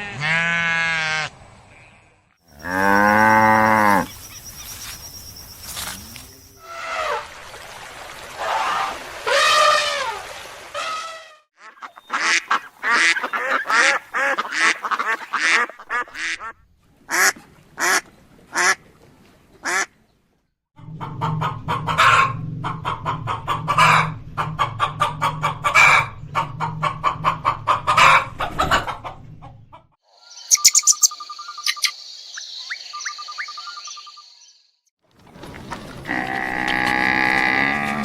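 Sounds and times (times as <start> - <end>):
poultry calling: 11.6 - 16.5.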